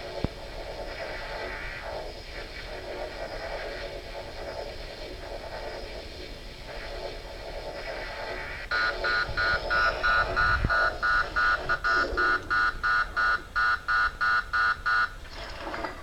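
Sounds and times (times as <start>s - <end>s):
rapid warning beeps: 7.3s - 15.2s.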